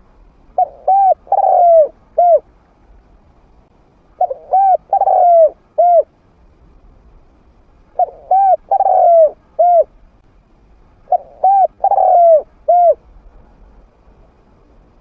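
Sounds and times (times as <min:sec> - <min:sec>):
dove cooing: 0:00.6 - 0:02.5, 0:04.2 - 0:06.1, 0:08.0 - 0:09.9, 0:11.1 - 0:13.0.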